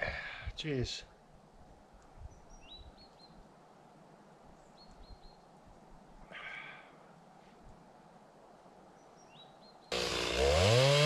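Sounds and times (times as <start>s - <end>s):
small birds chirping: 1.9s - 3.6s, 4.4s - 6.6s, 8.8s - 10.0s.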